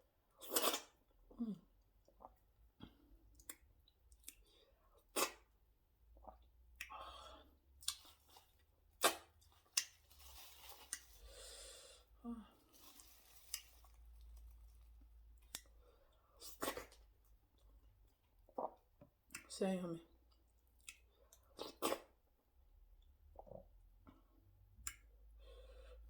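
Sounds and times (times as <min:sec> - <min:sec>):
person chewing food: 0:06.2 - 0:11.3.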